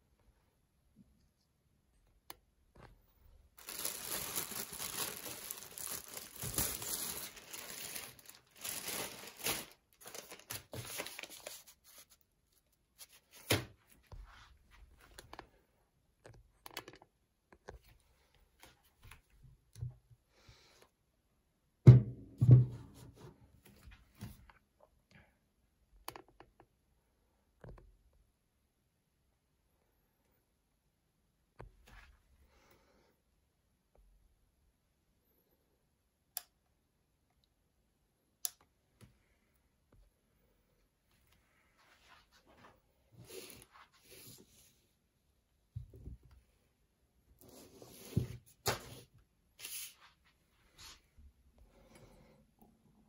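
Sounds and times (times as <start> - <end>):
plastic wrapping crinkling: 3.5 - 12.2.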